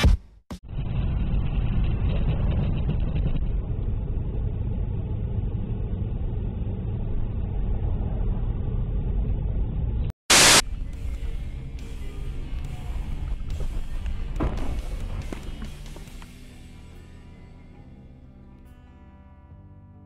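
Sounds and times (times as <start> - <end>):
car engine and road noise: 0.7 - 17.7
loud burst of noise: 10.3 - 10.6.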